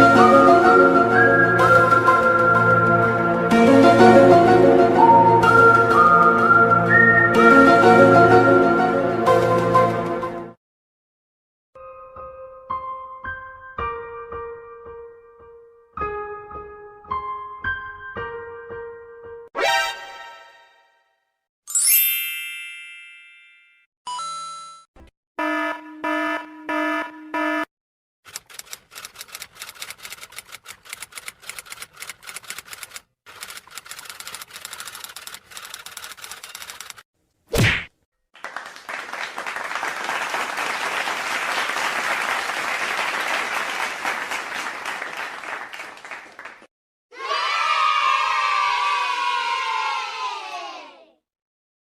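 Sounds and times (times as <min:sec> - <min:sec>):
bright ringing ding: 0:21.7 - 0:24.8
crowd applauding: 0:38.4 - 0:46.7.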